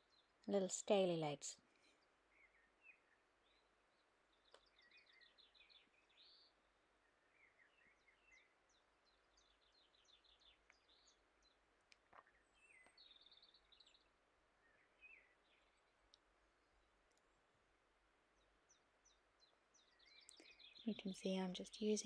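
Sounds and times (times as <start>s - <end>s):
faint clicks: 4.4s - 4.7s, 15.8s - 16.3s, 17.0s - 17.3s.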